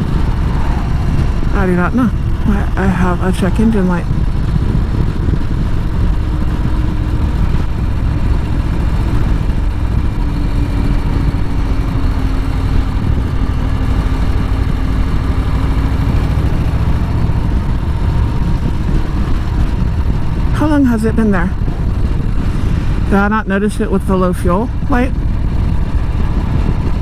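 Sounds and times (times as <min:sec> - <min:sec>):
motorcycle engine rumbling: 0:00.0 - 0:27.0.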